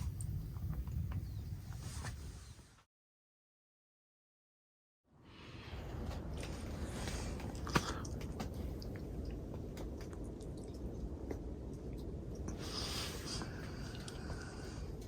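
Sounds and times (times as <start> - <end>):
wood fire crackling in a stove: 5.7 - 15.0.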